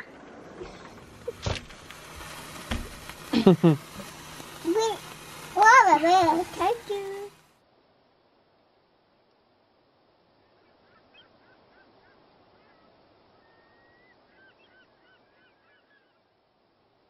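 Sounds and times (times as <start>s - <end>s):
faint quick chirping calls: 10.3s - 16.4s.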